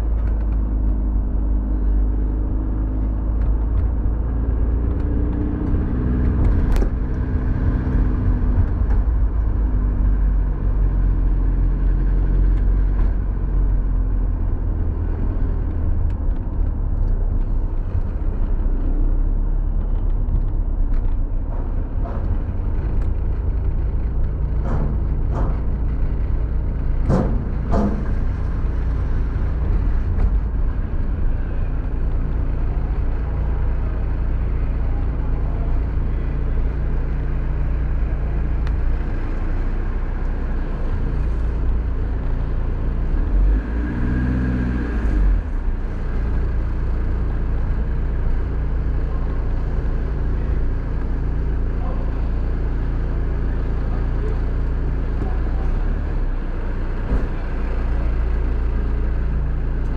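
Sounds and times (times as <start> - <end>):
pitched hum: 0.0 - 43.1
car engine and tyres hum: 0.0 - 59.9.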